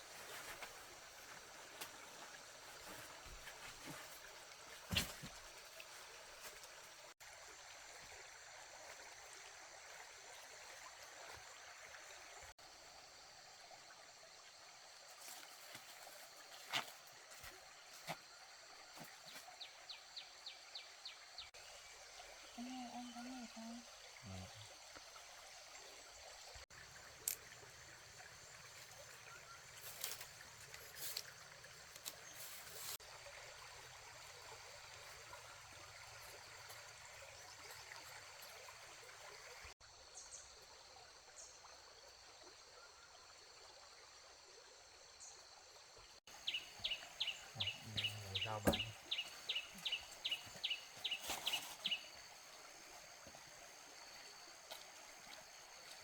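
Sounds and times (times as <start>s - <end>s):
running water trickling: 0.0s - 42.6s, 43.3s - 56.0s.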